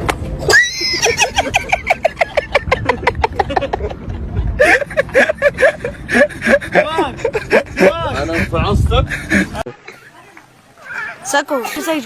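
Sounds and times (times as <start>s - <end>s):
high cry: 0.5s - 1.6s
person laughing hard: 0.5s - 9.6s.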